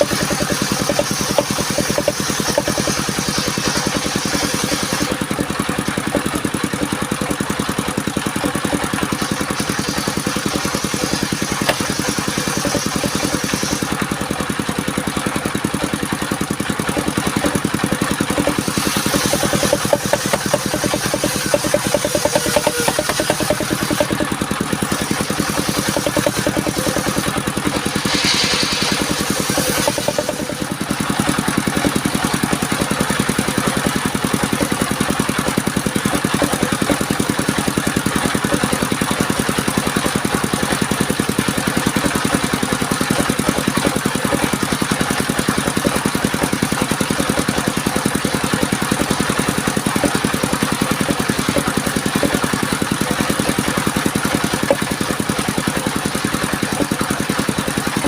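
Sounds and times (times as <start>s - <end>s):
sawmill engine running: 0.0s - 58.0s
brief hiss: 27.8s - 30.1s.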